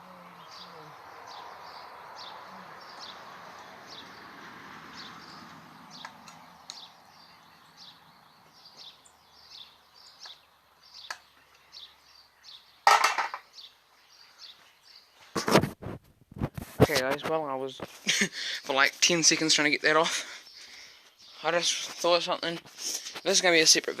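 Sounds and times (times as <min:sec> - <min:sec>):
small bird chirping: 0:00.0 - 0:15.7.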